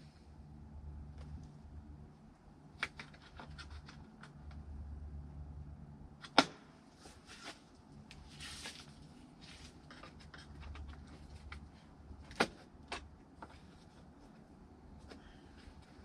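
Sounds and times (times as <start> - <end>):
scraping rustle: 7.0 - 11.7.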